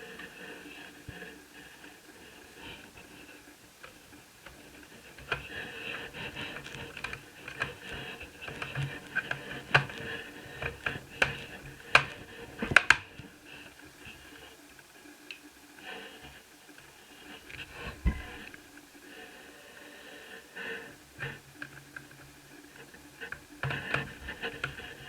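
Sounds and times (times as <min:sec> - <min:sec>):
small clicks and clatter: 0:00.0 - 0:15.5, 0:20.9 - 0:25.0.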